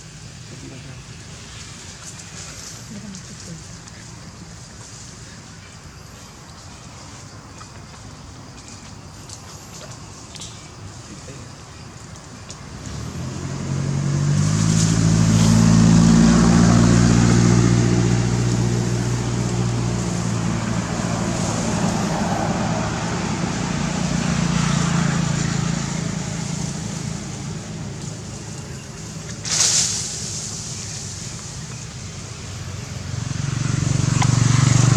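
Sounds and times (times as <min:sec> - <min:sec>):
vehicle engine passing by: 0:12.4 - 0:34.9.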